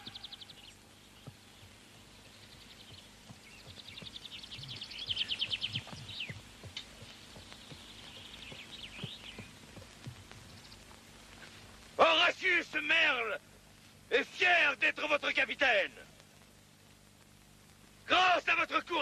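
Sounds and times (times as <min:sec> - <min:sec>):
birds calling in high trills: 0:00.0 - 0:09.6
faint outdoor background noise: 0:00.0 - 0:19.0.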